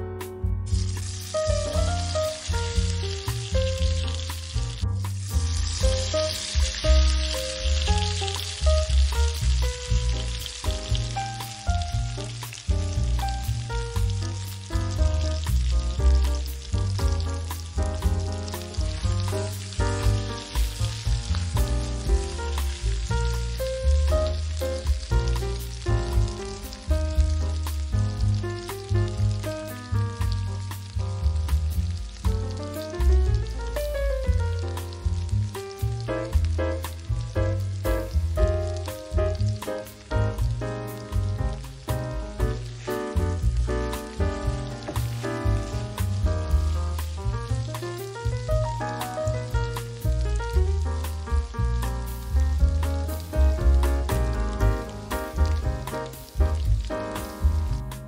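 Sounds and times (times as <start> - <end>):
background music: 0.0 - 58.0
vegetables frying in a pan: 0.6 - 58.0.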